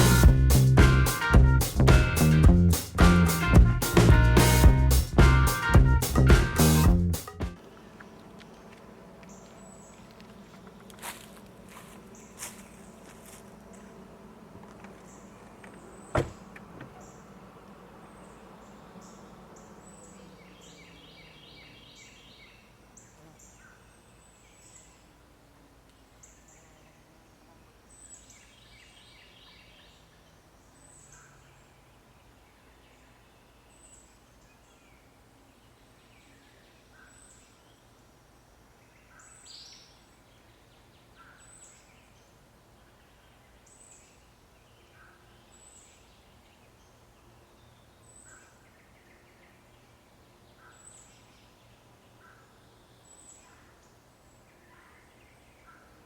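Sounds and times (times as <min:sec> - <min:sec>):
bird chirping: 0:00.0 - 0:25.1.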